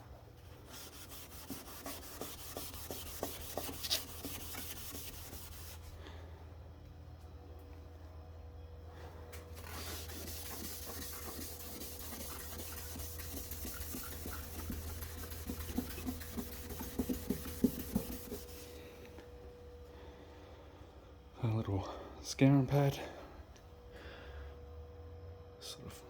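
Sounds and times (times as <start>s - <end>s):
scratchy rubbing by hand: 0.7s - 5.9s, 9.6s - 18.8s.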